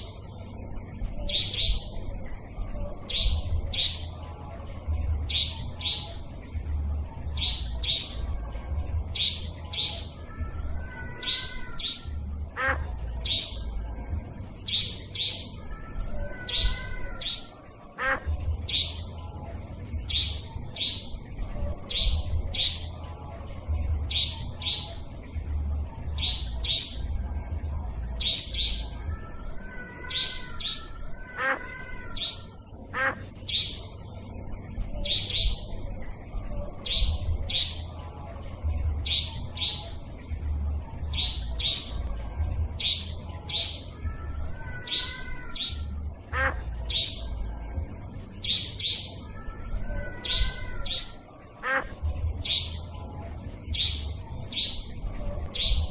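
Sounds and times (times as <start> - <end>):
steady low rumble: 0.0 - 10.8, 18.0 - 29.2, 32.7 - 44.5, 45.8 - 48.5, 51.9 - 55.9
sharp high bird calls: 1.2 - 2.1, 3.1 - 4.2, 7.4 - 8.3, 9.1 - 13.8, 14.6 - 19.2, 20.1 - 21.3, 28.2 - 34.0, 35.0 - 35.8, 42.8 - 47.4, 48.4 - 52.9, 53.7 - 55.9.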